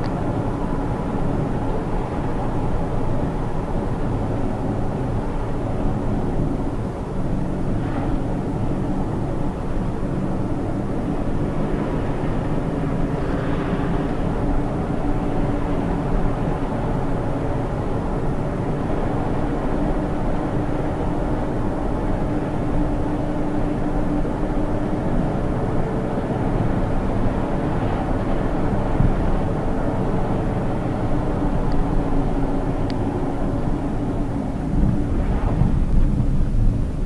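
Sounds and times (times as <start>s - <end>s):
tyre and road rumble: 7.6s - 37.0s.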